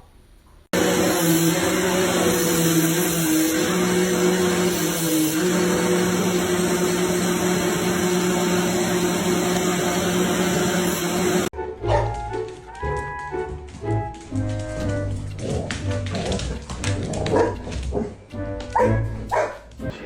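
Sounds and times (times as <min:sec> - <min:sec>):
vacuum cleaner running: 0:00.7 - 0:11.5.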